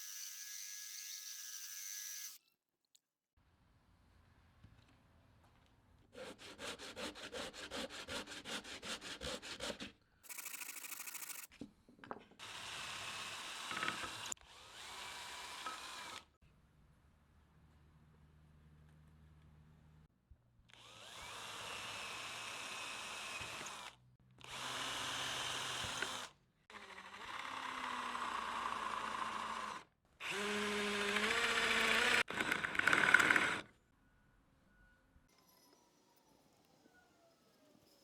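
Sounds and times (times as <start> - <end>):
handheld power tool motor: 10.3 - 11.5, 20.8 - 33.7.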